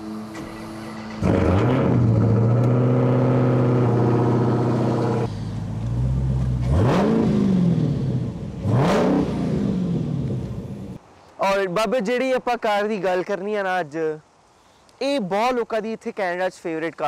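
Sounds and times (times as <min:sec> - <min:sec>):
car engine revving: 0:00.4 - 0:11.0.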